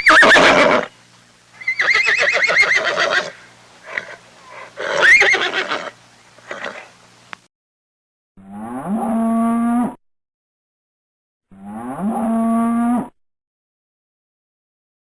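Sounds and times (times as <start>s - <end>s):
horse whinnying: 0.0s - 0.9s, 1.6s - 6.9s.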